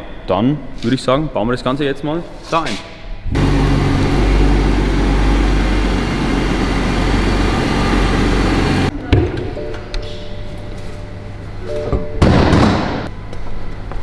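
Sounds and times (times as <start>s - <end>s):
car engine idling: 3.4s - 8.9s.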